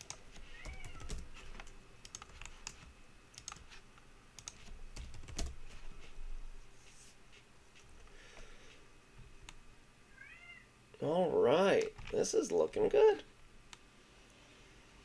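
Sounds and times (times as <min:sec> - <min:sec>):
keyboard typing: 0:00.0 - 0:03.8, 0:04.4 - 0:05.9.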